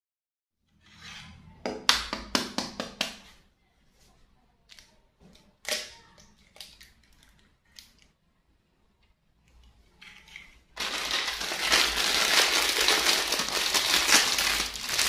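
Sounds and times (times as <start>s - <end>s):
plastic packet crinkling: 10.7s - 15.0s.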